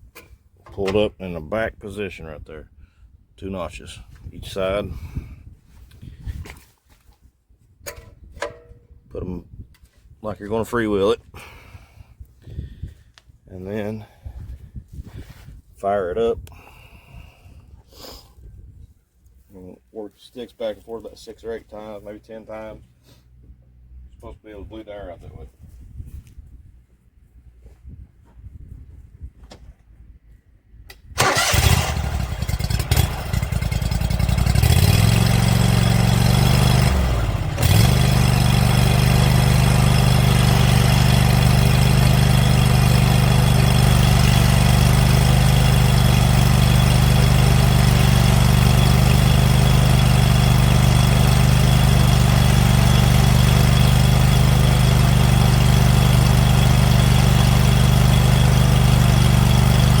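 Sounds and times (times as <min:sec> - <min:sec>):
mower engine cranking on starter: 0:30.9 - 1:00.0
mower engine running: 0:31.2 - 1:00.0.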